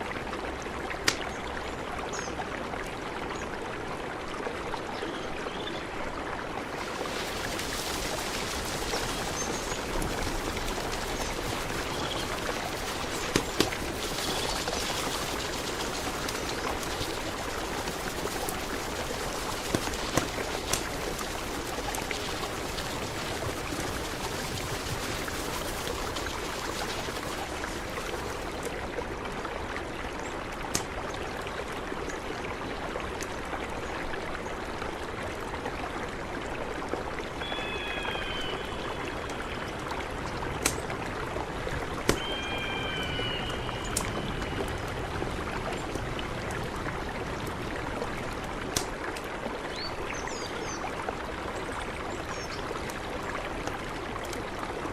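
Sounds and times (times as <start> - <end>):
river flowing: 0.0 - 54.9.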